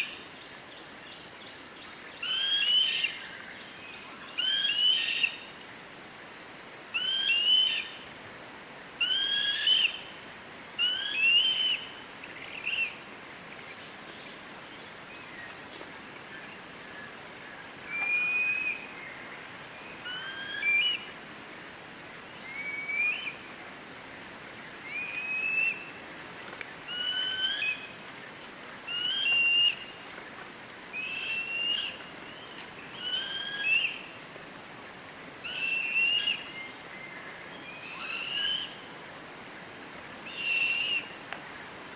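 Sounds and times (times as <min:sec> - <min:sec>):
bird whistled call: 0:17.9 - 0:18.8, 0:22.4 - 0:23.4, 0:24.9 - 0:25.8, 0:33.0 - 0:34.0, 0:35.5 - 0:36.6, 0:37.7 - 0:38.7, 0:40.3 - 0:41.1.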